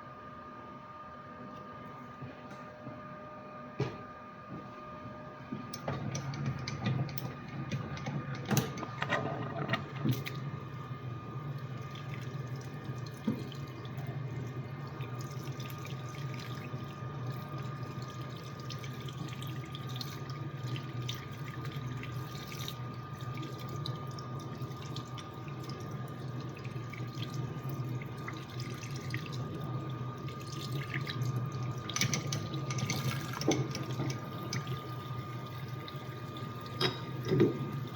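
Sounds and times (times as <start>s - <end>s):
splashing coolant: 11.6s - 36.9s.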